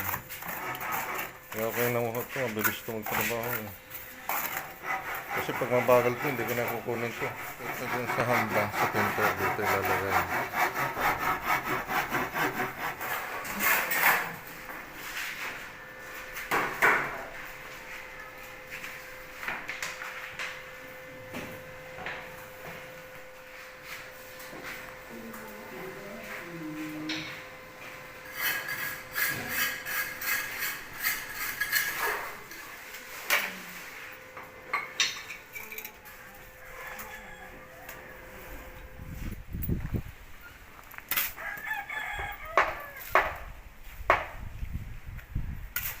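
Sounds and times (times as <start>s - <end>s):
handsaw cutting wood: 0.0s - 2.0s, 4.4s - 14.3s
tool strokes on wood: 0.0s - 14.3s.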